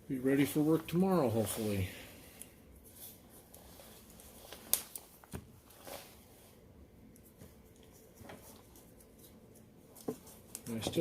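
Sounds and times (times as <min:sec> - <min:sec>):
electrical tape crackling: 0:00.5 - 0:06.2.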